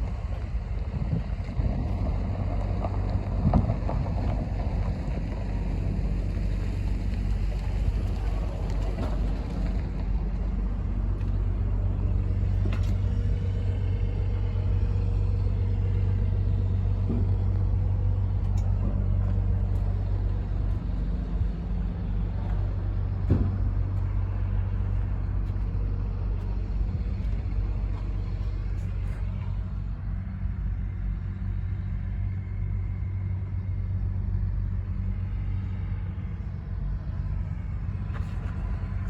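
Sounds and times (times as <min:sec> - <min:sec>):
diesel truck engine idling: 0:00.0 - 0:39.0.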